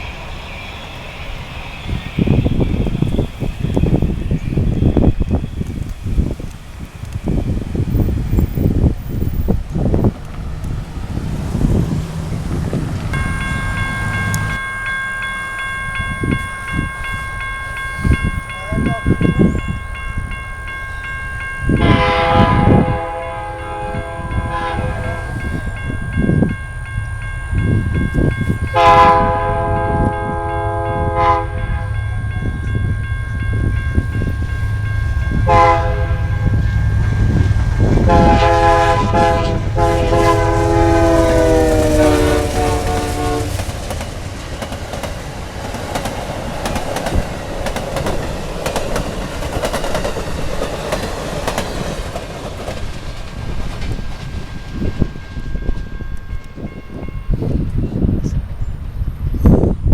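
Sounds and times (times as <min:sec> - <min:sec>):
diesel locomotive rumble: 0:00.0 - 0:59.9
train cars rolling clatter: 0:00.0 - 0:59.9
train horn blasts: 0:13.1 - 0:43.7.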